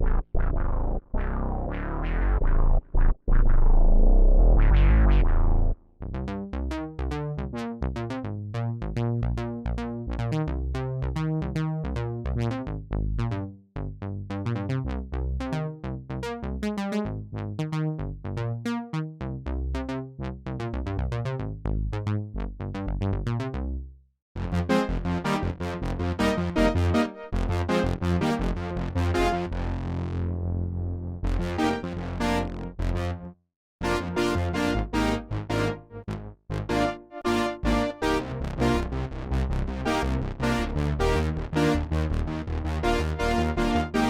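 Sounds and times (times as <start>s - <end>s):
synth bass line: 0.0s - 7.3s, 24.4s - 44.0s
sequenced plucked synth notes: 0.0s - 13.4s, 24.4s - 44.0s.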